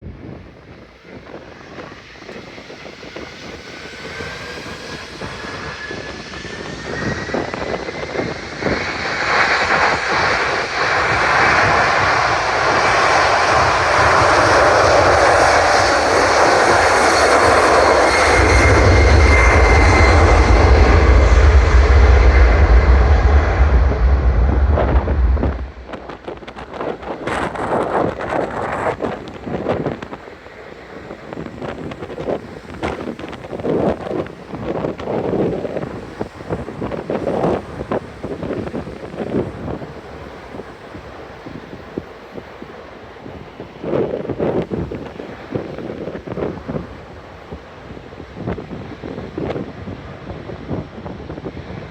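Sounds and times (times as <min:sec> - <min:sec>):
jet engines on takeoff: 0:00.0 - 0:51.9
rising fan whine: 0:01.1 - 0:30.0
heavy low rumble: 0:04.4 - 0:29.6.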